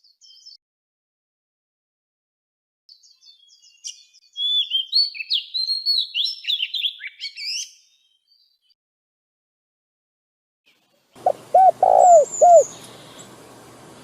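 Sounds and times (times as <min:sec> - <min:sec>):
songbird singing: 0:02.9 - 0:08.8, 0:10.8 - 0:14.0.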